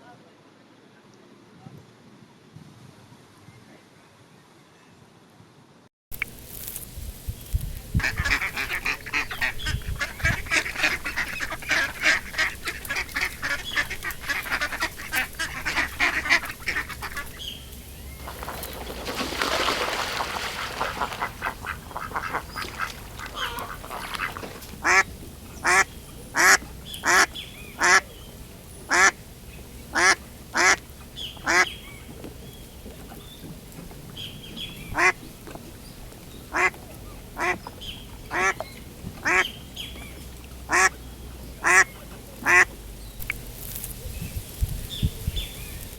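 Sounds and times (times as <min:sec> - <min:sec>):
duck quacking: 0:08.0 - 0:17.5, 0:20.5 - 0:28.1, 0:28.9 - 0:29.2, 0:29.9 - 0:30.8, 0:31.4 - 0:31.8, 0:34.9 - 0:35.2, 0:36.5 - 0:36.7, 0:37.4 - 0:37.6, 0:38.3 - 0:38.6, 0:39.2 - 0:39.6, 0:40.7 - 0:41.0, 0:41.6 - 0:42.7.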